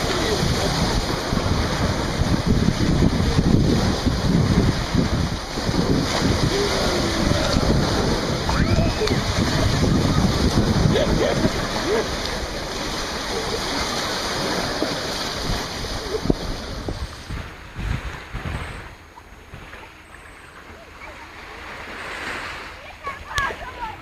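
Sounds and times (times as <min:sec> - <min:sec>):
surf washing and splashing: 0:00.0 - 0:24.0
faint voices: 0:06.1 - 0:16.4.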